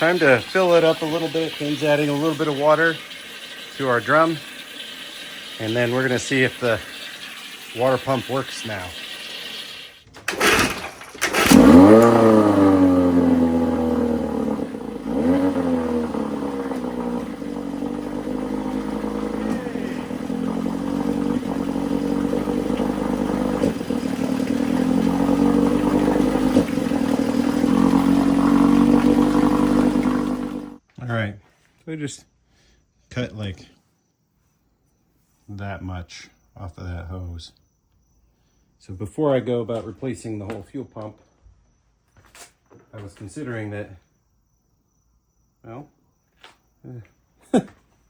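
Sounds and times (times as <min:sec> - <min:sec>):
outboard motor running: 0:00.0 - 0:30.8.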